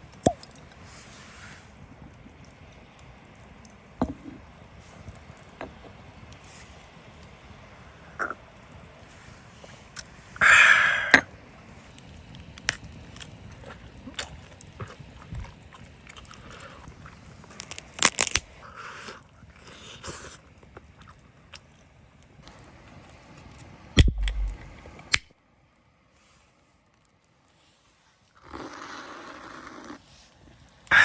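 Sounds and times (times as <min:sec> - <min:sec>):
person biting and chewing: 0:17.6 - 0:18.4, 0:24.0 - 0:24.7
sharp clicks: 0:24.0 - 0:25.3.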